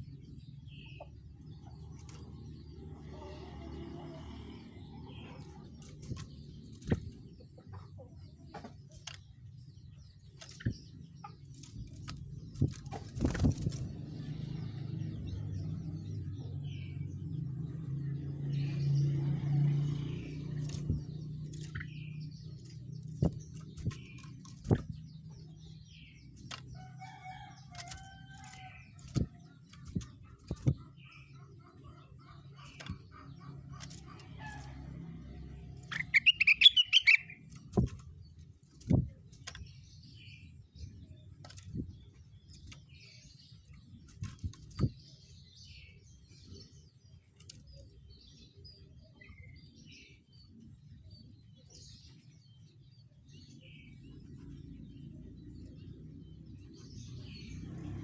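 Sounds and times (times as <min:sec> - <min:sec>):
songbird chirps: 0:00.0 - 0:58.0
bird making sharp clicks: 0:35.8 - 0:37.8.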